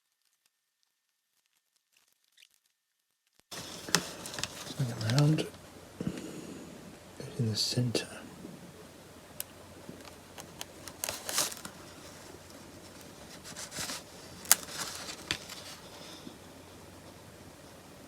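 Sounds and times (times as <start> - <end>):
paper sticker rustling: 3.5 - 5.5, 10.0 - 16.2.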